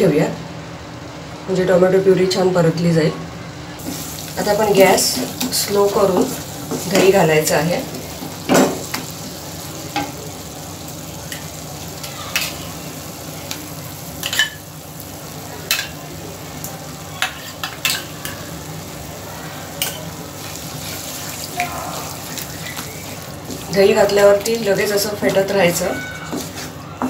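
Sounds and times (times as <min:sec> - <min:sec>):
sauce sizzling in a pan: 0:03.8 - 0:26.8.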